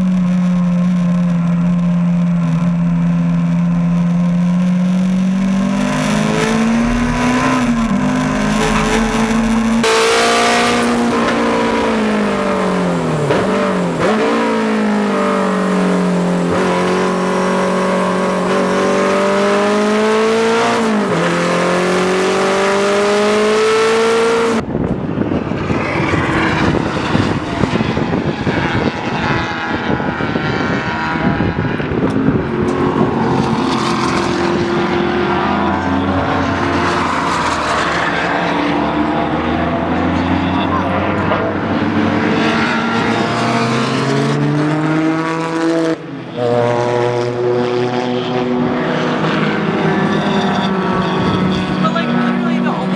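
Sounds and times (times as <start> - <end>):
race car engine at high revs: 0.0 - 52.9
road noise: 0.0 - 52.9.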